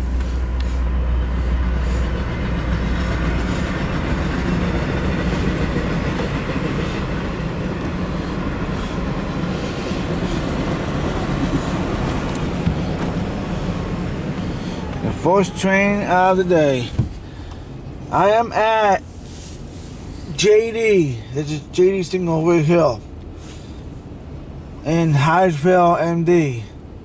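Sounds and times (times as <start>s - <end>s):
low hum: 0.0s - 20.4s
freight cars rumbling past: 0.0s - 27.0s.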